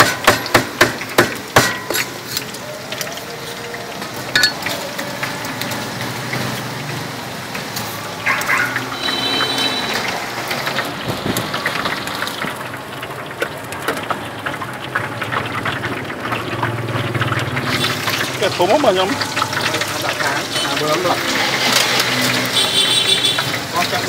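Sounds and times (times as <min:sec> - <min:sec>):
food deep-frying in oil: 0:00.0 - 0:24.0
metallic clink: 0:04.4 - 0:04.7.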